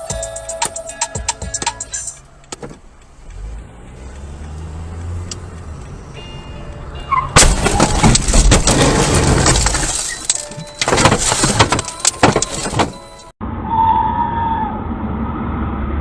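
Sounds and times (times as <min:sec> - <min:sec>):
vehicle engine running: 0:01.9 - 0:09.4.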